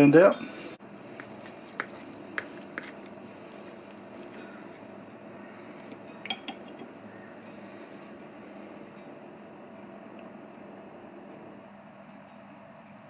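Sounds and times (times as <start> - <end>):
cutlery clinking on a plate: 6.0 - 7.6.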